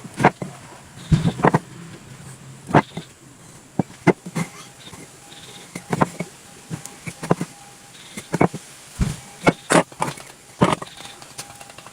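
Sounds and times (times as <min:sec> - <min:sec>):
knocks and clicks of wood: 0:01.1 - 0:01.6.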